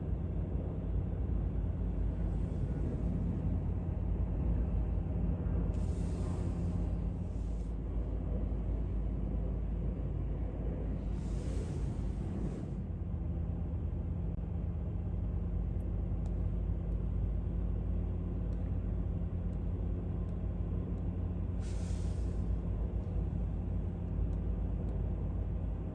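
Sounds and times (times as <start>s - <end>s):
jet engines rumbling: 0.0s - 25.9s
low hum: 0.0s - 25.9s
brief hiss: 21.6s - 22.5s.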